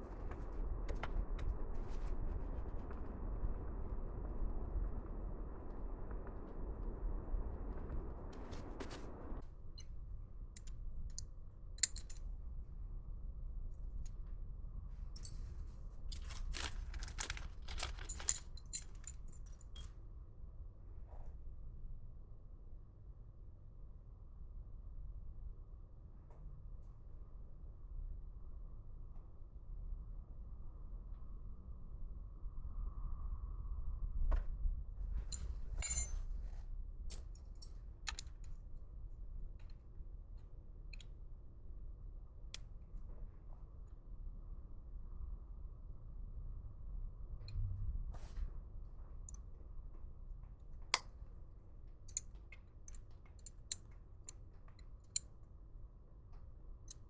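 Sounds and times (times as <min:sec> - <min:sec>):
small metal parts clinking: 0:11.8 - 0:12.2, 0:16.1 - 0:19.9, 0:35.3 - 0:36.2
small rattles and clicks: 0:16.1 - 0:19.9, 0:35.3 - 0:36.2
low steady hum: 0:35.2 - 0:36.3.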